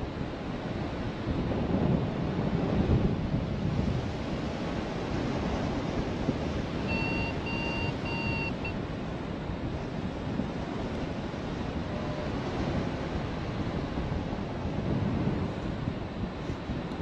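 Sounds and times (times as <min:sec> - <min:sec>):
strong wind on microphone: 0:00.0 - 0:17.0
variometer beeps: 0:06.8 - 0:08.8, 0:11.8 - 0:12.4.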